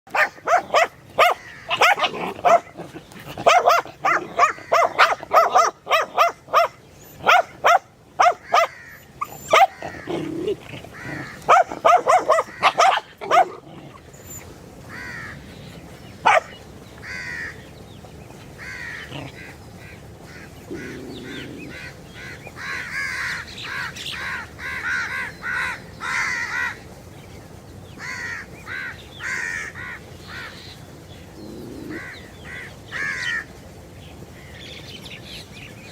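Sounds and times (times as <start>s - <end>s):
dog barking loudly: 0.1s - 14.0s, 16.2s - 16.6s.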